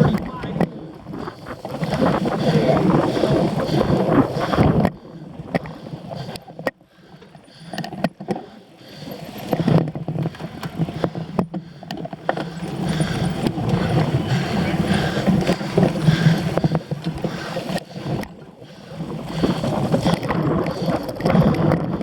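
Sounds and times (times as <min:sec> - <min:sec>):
wind buffeting microphone: 0:00.0 - 0:06.4, 0:09.5 - 0:22.0
bike rattling over rough ground: 0:00.0 - 0:22.0.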